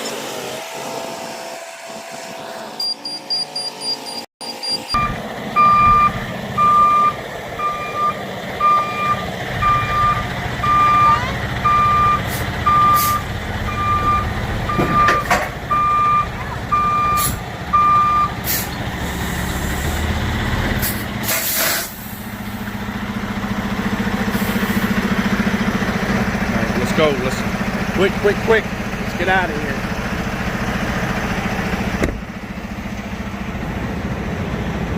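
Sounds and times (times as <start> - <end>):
reversing alarm beeping: 2.8 - 18.4
diesel truck engine running: 4.6 - 34.9
air brakes hissing: 12.2 - 13.3, 17.1 - 17.4, 18.4 - 20.2, 20.8 - 22.4, 24.2 - 25.0.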